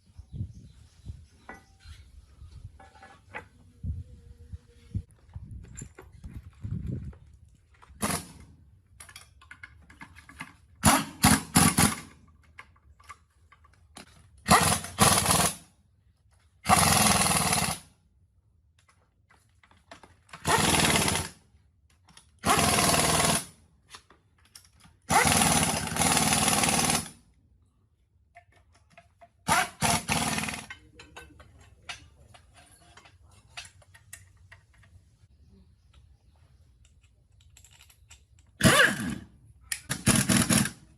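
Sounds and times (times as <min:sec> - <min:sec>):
power tool bursts: 0:29.5 - 0:30.7
small clinks: 0:36.8 - 0:38.6.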